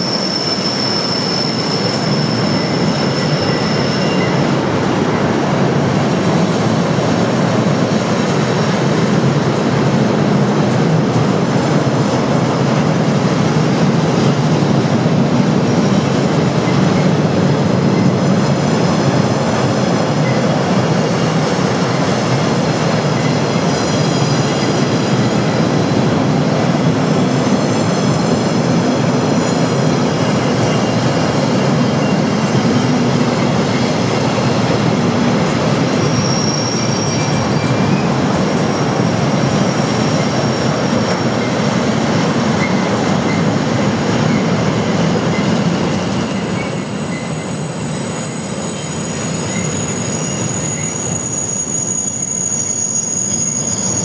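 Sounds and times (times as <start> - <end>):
high wheel squeals: 0.0 - 5.4, 23.0 - 26.0, 27.1 - 54.0
train wheels rumbling on rail: 0.0 - 54.0.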